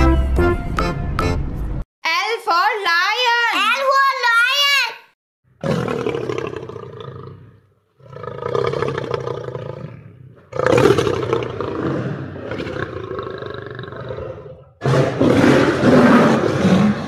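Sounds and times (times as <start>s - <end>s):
lion roaring: 5.6s - 17.0s.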